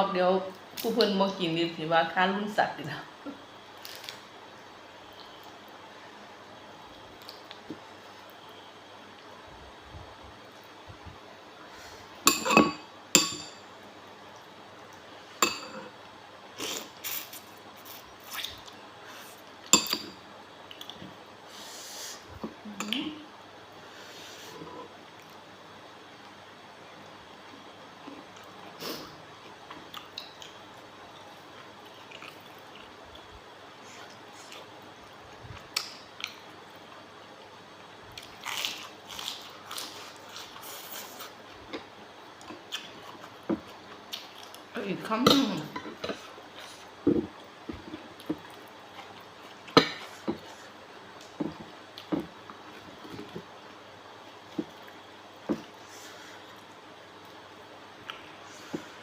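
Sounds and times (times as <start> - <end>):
steady low hiss: 0.0 - 59.0.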